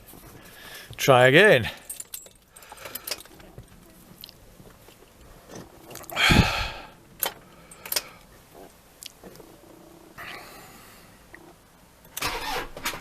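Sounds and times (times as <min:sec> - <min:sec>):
engine starter weak turn: 0:12.2 - 0:13.0.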